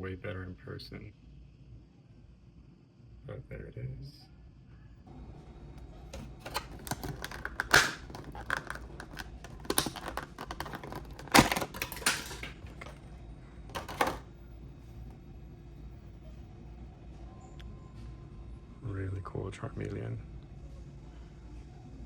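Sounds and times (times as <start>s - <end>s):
packaging being handled: 6.1s - 13.1s, 13.7s - 14.3s.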